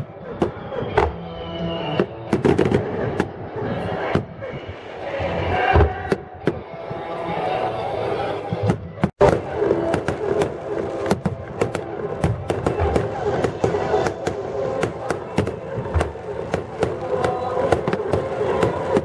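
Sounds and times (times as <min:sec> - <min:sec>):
crowd voices: 0:00.0 - 0:19.0
fireworks bangs and crackles: 0:02.0 - 0:03.4, 0:08.6 - 0:19.0.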